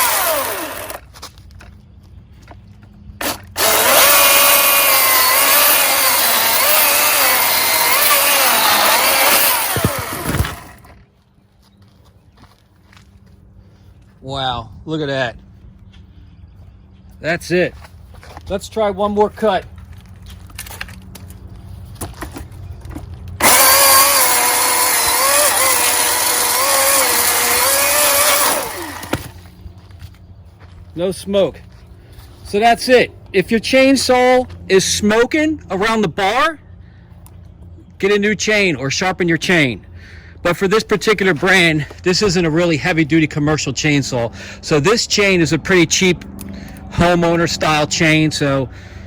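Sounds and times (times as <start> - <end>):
electric chainsaw cutting wood: 0.0 - 1.1, 3.2 - 11.0, 23.4 - 29.5.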